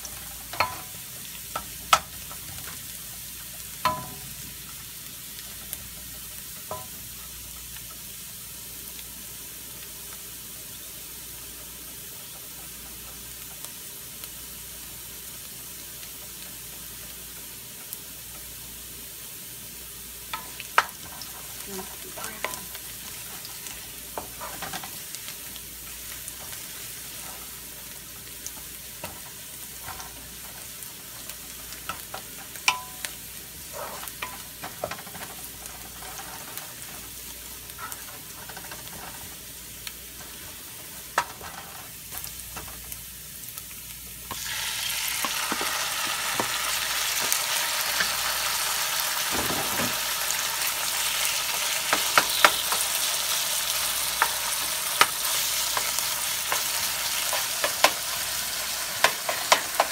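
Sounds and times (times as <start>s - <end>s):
food sizzling in hot oil: 0.0s - 59.9s.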